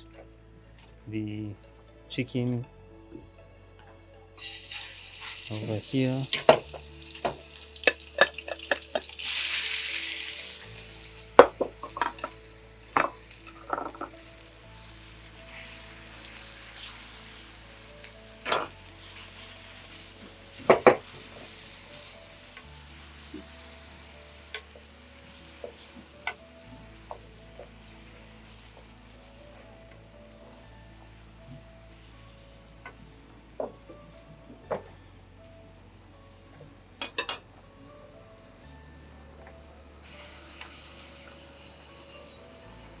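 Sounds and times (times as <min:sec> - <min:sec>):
chicken sizzling in hot oil: 0:04.4 - 0:32.6, 0:39.9 - 0:43.0
utensils knocking against pan: 0:06.3 - 0:09.1, 0:11.4 - 0:12.4, 0:13.0 - 0:14.1, 0:20.6 - 0:21.0.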